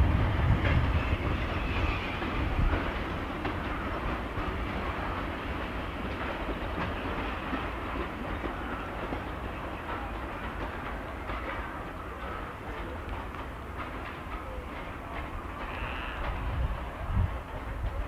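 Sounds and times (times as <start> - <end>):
wind buffeting microphone: 0.0 - 8.4, 13.8 - 18.0
clickety-clack from rails: 0.0 - 18.0
train rumbling: 0.0 - 18.0.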